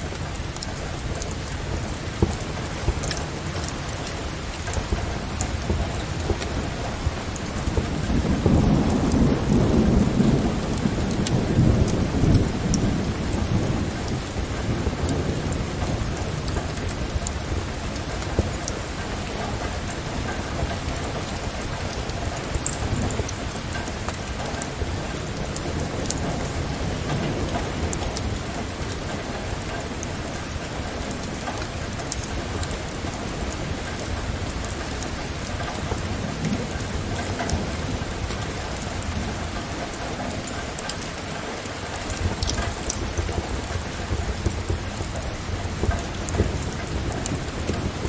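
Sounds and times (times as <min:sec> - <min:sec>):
wood fire crackling: 0:00.0 - 0:13.4
low rumble of thunder: 0:00.0 - 0:48.0
steady rain falling: 0:00.0 - 0:48.0.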